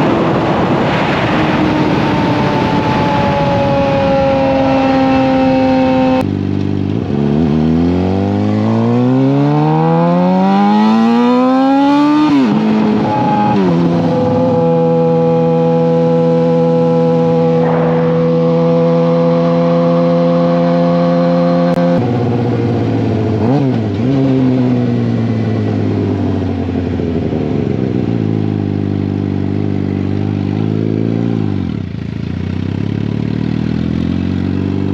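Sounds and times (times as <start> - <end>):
motorcycle engine: 0.0 - 34.9.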